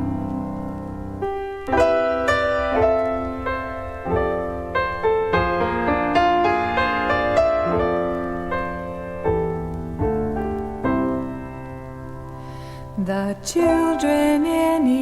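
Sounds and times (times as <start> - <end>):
slow piano ballad: 0.0 - 15.0.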